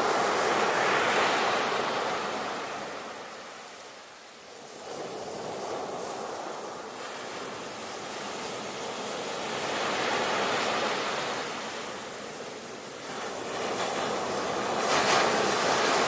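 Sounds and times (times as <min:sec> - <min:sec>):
ocean waves breaking: 0:04.6 - 0:16.0.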